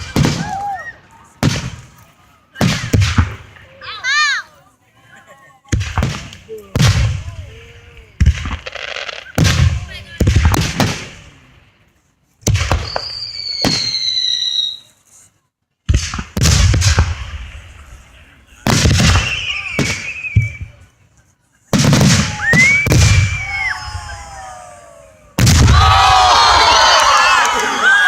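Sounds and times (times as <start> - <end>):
fireworks banging: 0.0 - 3.7, 5.6 - 11.6, 12.4 - 14.2, 15.8 - 20.9, 21.7 - 23.9
fireworks whistling: 12.4 - 15.3, 18.6 - 21.0, 21.8 - 27.0.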